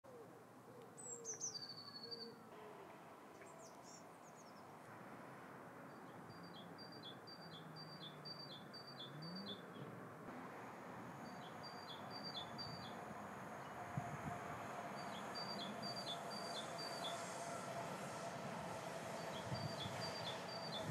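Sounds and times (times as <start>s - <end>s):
faint background noise: 0.0s - 20.9s
small bird calling: 0.1s - 4.5s.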